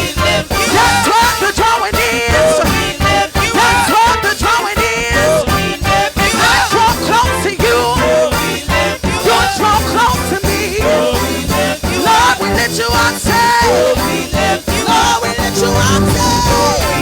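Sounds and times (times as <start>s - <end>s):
drums keeping a beat: 0.0s - 17.0s
gospel band playing: 0.0s - 17.0s
person singing: 0.0s - 17.0s.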